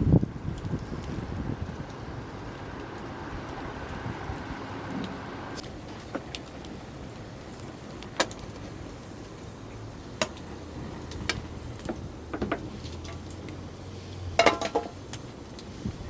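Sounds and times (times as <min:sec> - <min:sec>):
campfire crackling pops: 0:00.0 - 0:16.0.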